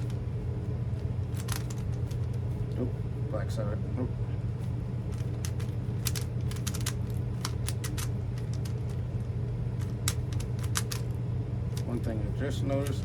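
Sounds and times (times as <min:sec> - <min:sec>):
low hum: 0:00.0 - 0:13.0
puzzle cube clicking: 0:05.2 - 0:08.9, 0:09.8 - 0:11.1.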